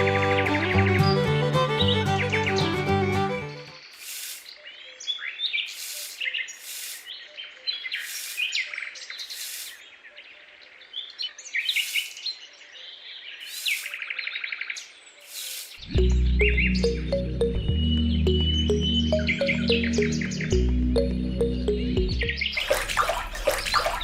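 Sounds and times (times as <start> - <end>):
background music: 0.0 - 3.8, 15.9 - 24.0
birds chirping: 0.0 - 24.0
bird trill: 11.6 - 12.3.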